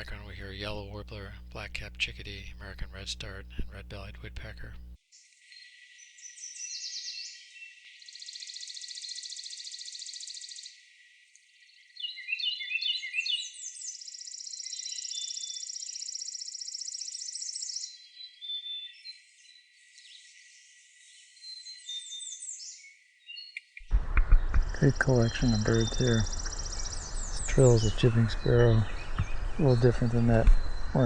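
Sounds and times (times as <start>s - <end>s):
other songbirds calling: 0.0s - 10.6s, 12.0s - 31.0s
songbird dry trills: 12.0s - 31.0s.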